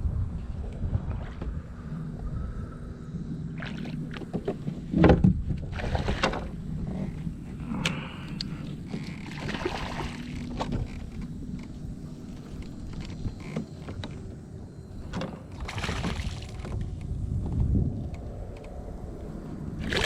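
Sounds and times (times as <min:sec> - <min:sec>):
low rumble: 0:00.0 - 0:13.4, 0:14.1 - 0:20.0
knocks and thumps on kayak: 0:03.6 - 0:06.6, 0:15.0 - 0:17.7.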